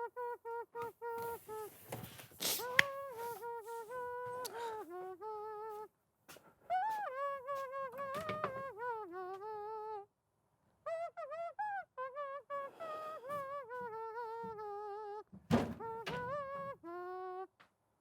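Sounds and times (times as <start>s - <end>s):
high-pitched voice humming: 0.0s - 5.9s, 6.7s - 10.1s, 10.9s - 17.6s
thunks: 8.0s - 8.7s, 15.3s - 16.9s.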